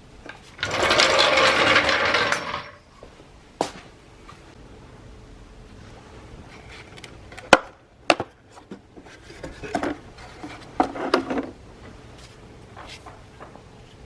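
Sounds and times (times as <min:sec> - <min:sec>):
clattering knocks of wheel parts: 0:00.2 - 0:02.9.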